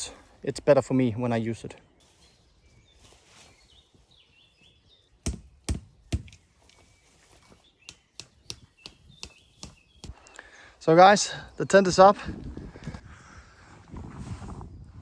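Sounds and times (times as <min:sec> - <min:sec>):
birds chirping: 0:01.0 - 0:13.0
sharp knocks: 0:05.2 - 0:06.4, 0:07.9 - 0:10.2.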